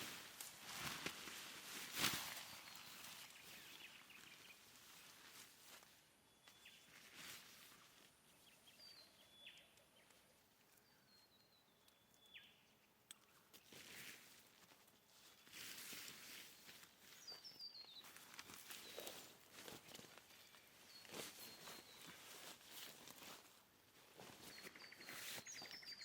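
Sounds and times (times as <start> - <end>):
soft rustles: 0.0 - 8.6, 13.5 - 26.0
faint bird chirps: 2.1 - 5.4, 6.2 - 13.8, 16.3 - 23.4, 24.2 - 26.0.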